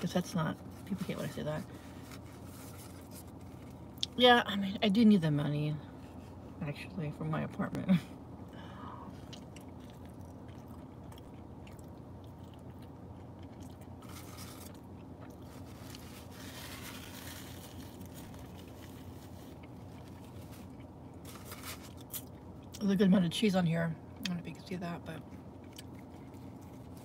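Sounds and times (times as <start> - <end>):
low steady hum: 0.0 - 27.0
soft rustles: 0.6 - 3.8, 15.4 - 22.1
close chewing: 9.1 - 22.8, 25.2 - 27.0.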